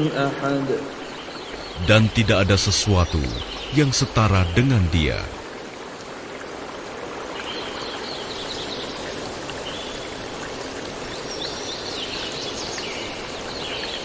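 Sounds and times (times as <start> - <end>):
small birds chirping: 0.0 - 5.4
stream flowing: 0.0 - 14.0.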